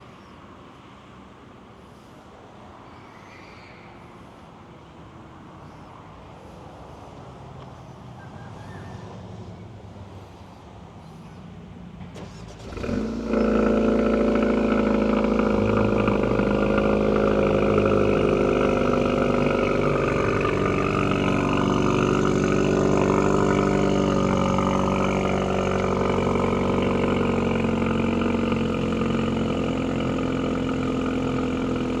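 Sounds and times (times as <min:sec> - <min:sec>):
car engine starting and idling: 0:12.0 - 0:32.0.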